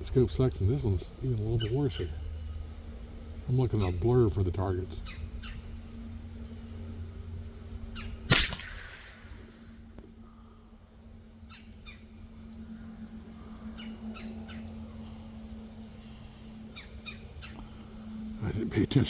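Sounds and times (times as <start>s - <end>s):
birds chirping faintly: 0.0s - 19.0s
rifle shot with echo: 8.3s - 9.7s.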